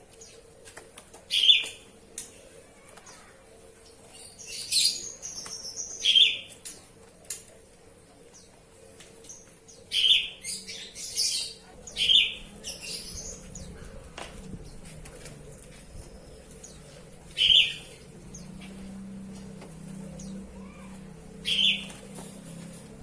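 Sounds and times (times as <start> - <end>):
bird chirping and singing: 4.2 - 6.6, 9.3 - 13.8, 16.2 - 18.6, 21.4 - 22.0.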